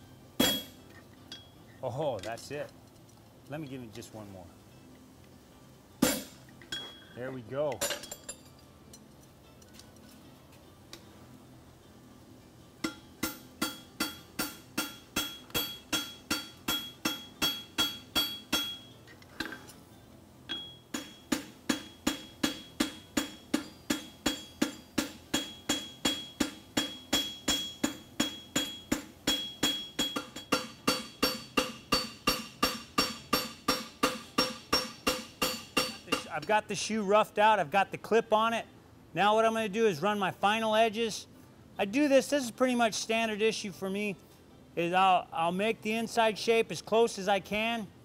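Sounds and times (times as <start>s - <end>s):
hammer striking steel on anvil: 0.4s - 1.5s, 6.0s - 7.1s, 12.8s - 19.0s, 20.5s - 36.5s.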